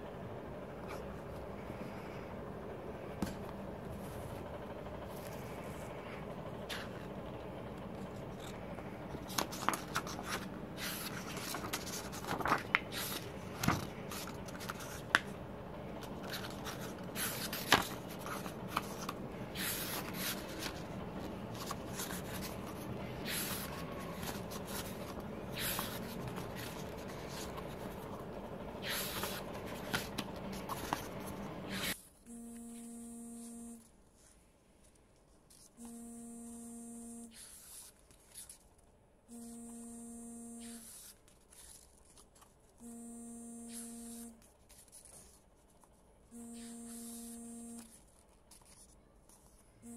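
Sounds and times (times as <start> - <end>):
steady electric hum: 0.0 - 49.9
paper and plastic packaging rustling: 8.0 - 15.3, 15.9 - 31.5.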